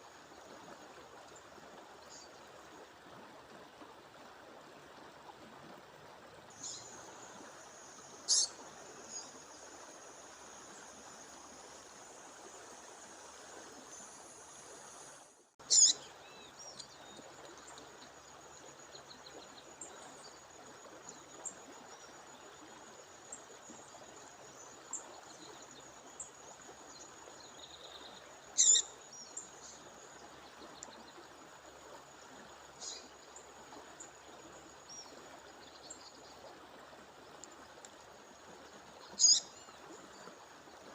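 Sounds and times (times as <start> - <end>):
songbird call notes: 6.6 - 9.9, 15.6 - 18.0, 26.9 - 31.3, 32.8 - 33.5, 38.7 - 40.9.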